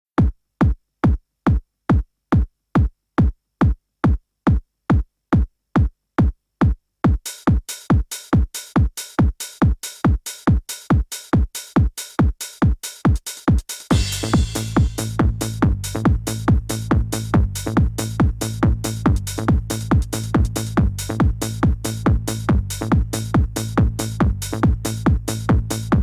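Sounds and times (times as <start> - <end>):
drum machine kick drum: 0.2 - 26.0
hi-hats and percussion: 6.6 - 26.0.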